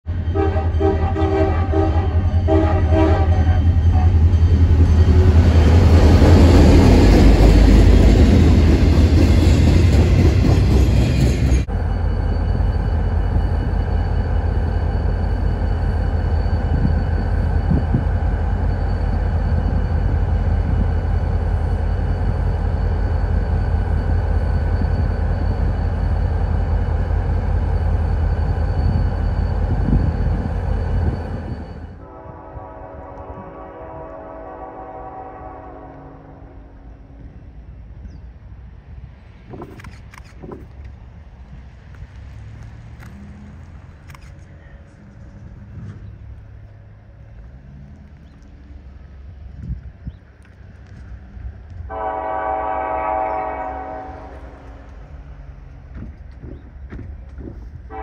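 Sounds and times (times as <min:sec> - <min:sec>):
diesel locomotive engine rumble: 0:00.0 - 0:58.0
train rolling rumble: 0:00.0 - 0:58.0
locomotive air horn blasts: 0:00.3 - 0:04.2, 0:32.0 - 0:36.8, 0:51.9 - 0:54.8.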